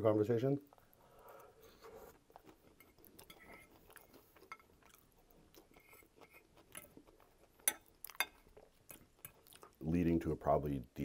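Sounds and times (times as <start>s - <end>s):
chewing with wet mouth clicks: 0.6s - 9.8s.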